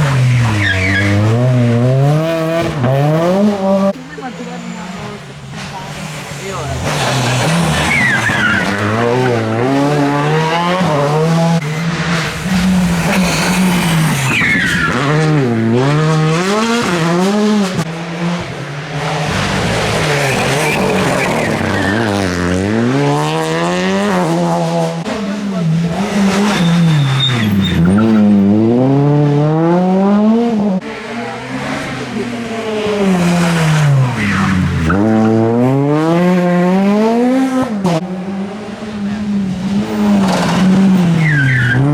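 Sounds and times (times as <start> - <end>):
rally car engines revving: 0.0 - 41.9
tyre squeal: 0.4 - 1.3, 6.8 - 9.5, 13.1 - 15.1, 26.3 - 28.3, 40.2 - 41.9.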